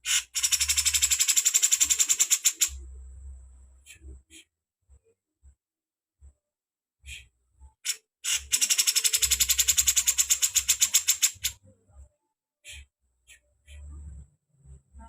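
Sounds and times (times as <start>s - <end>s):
bird harsh rattling call: 0.0s - 2.8s, 7.8s - 11.6s.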